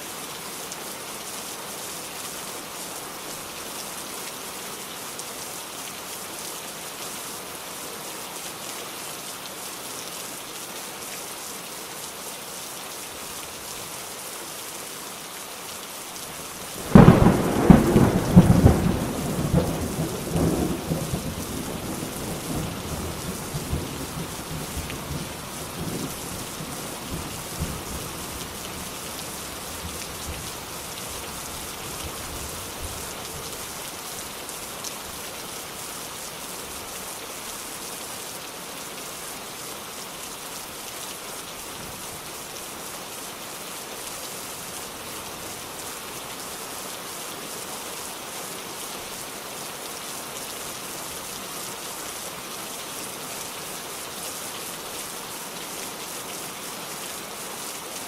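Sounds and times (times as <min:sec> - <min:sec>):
steady rain: 0:00.0 - 0:58.0
loud thunderclap rumbling: 0:16.8 - 0:22.7.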